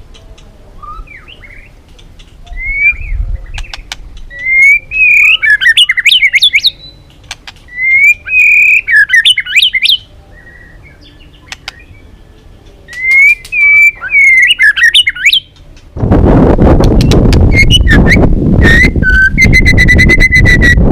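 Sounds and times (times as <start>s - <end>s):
bird singing whistled phrases: 0.8s - 1.7s, 2.4s - 7.1s, 7.7s - 12.1s, 12.9s - 15.5s, 17.5s - 20.9s
short sharp bird ticks: 3.6s - 4.5s, 7.0s - 7.7s, 11.4s - 11.9s.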